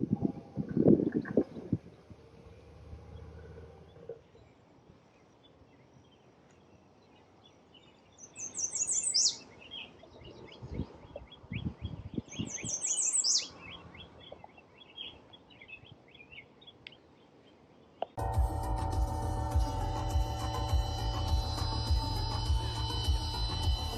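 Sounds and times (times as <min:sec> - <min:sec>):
small birds chirping: 0:00.6 - 0:18.2, 0:20.4 - 0:23.9
redstart singing: 0:03.1 - 0:23.9.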